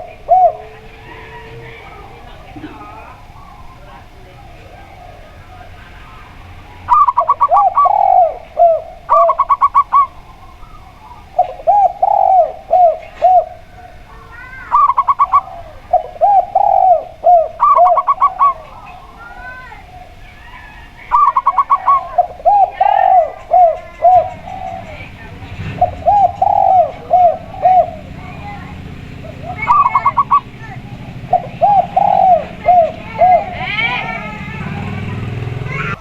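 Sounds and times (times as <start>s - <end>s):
doves cooing: 0.0s - 36.0s.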